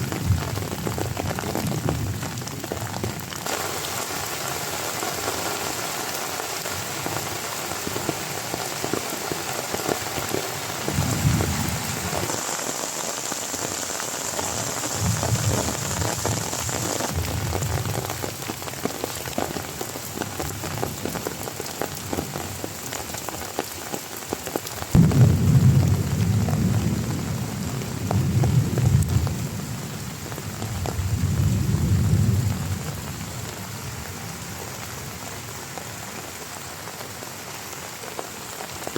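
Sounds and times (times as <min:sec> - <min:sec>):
heavy rain falling: 0:00.0 - 0:38.9
thunder rumbling: 0:10.8 - 0:12.4, 0:14.4 - 0:18.3, 0:24.9 - 0:29.9
thunder clap: 0:14.9 - 0:17.9, 0:24.9 - 0:29.4.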